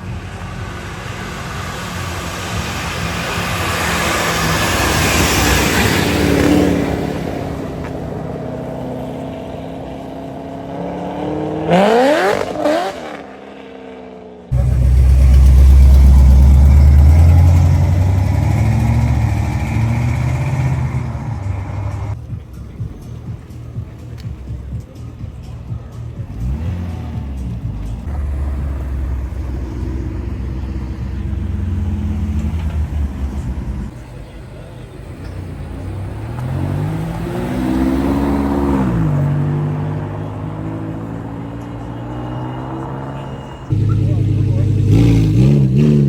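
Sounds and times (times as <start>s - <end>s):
car engine revving: 0.0s - 46.0s
car passing: 0.0s - 46.0s
deep exhaust rumble: 14.5s - 35.2s, 43.6s - 46.0s.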